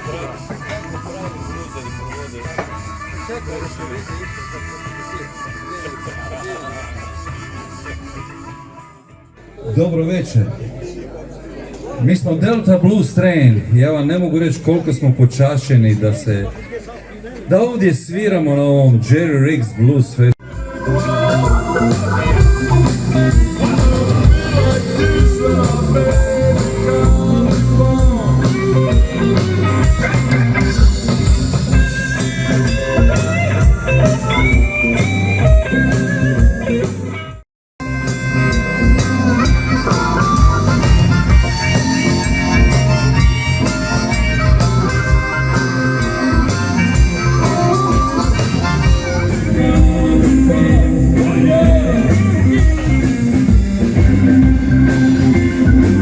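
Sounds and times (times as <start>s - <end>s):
blues band playing: 0.0s - 9.7s, 20.4s - 56.0s
harmonica: 0.1s - 9.3s, 20.4s - 37.2s, 37.8s - 56.0s.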